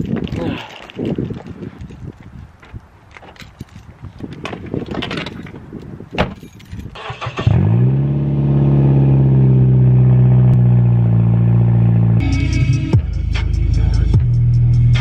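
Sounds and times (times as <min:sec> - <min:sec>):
car engine starting and idling: 0:06.9 - 0:14.2.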